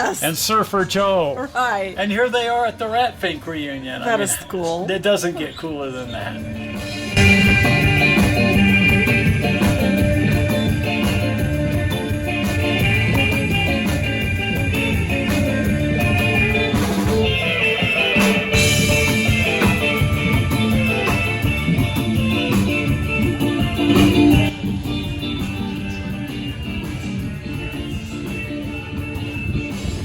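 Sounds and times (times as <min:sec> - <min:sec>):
drum kit: 0:06.0 - 0:30.0
surf rock band playing: 0:06.1 - 0:30.0
electric guitar: 0:06.2 - 0:30.0.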